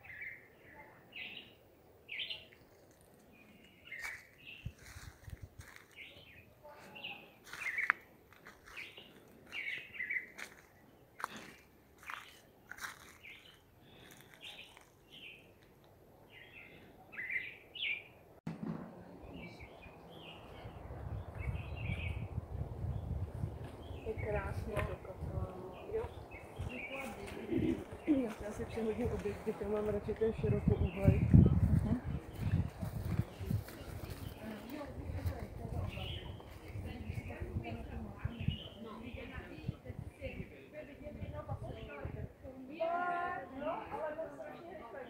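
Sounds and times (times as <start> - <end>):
birds chirping: 0.0 - 18.3, 19.1 - 42.2.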